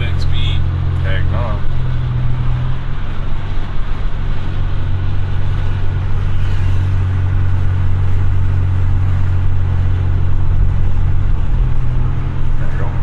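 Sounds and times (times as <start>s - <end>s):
car exhaust drone: 0.0s - 13.0s
road noise: 0.0s - 13.0s.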